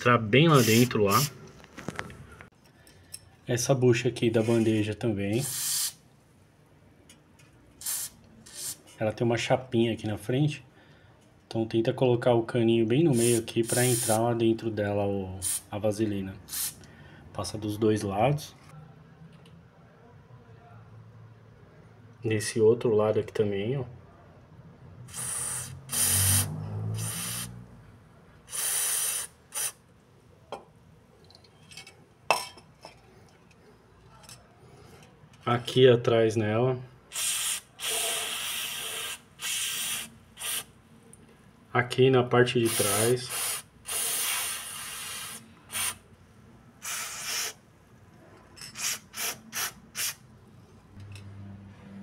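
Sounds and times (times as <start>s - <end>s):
aerosol spray hissing: 0.5s - 1.4s, 5.4s - 6.0s, 7.8s - 8.8s, 13.1s - 14.3s, 16.5s - 16.8s, 25.1s - 27.6s, 28.5s - 29.8s, 37.1s - 40.7s, 42.6s - 46.0s, 46.8s - 47.6s, 48.8s - 50.2s.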